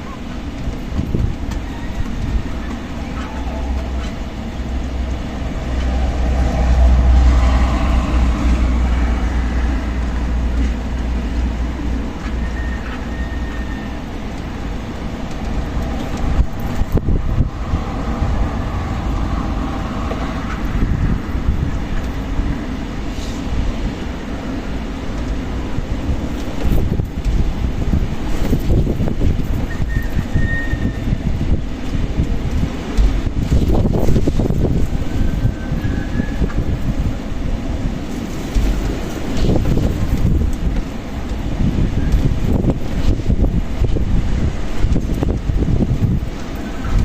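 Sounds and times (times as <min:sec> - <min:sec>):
strong wind buffeting microphone: 0:00.0 - 0:47.0.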